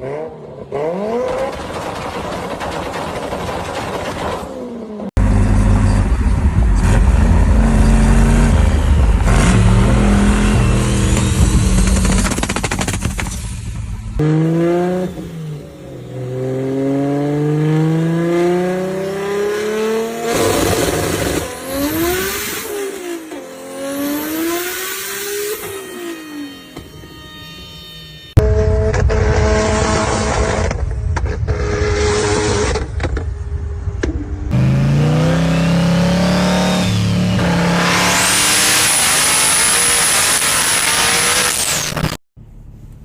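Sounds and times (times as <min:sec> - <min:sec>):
race car engine with sharp cracks: 0:01.2 - 0:04.5.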